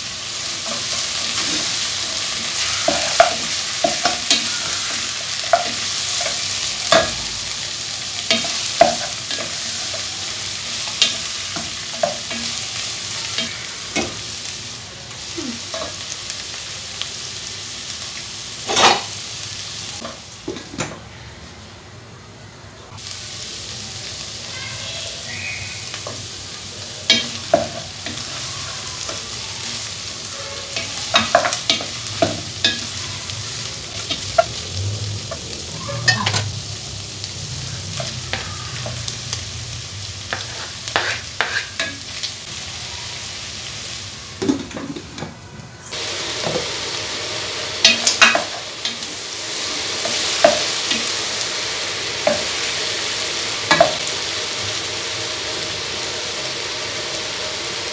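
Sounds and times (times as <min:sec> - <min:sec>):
beef sizzling in a pot: 0:00.0 - 0:20.8, 0:23.0 - 0:57.9
wooden spoon scraping a pot: 0:40.3 - 0:41.9.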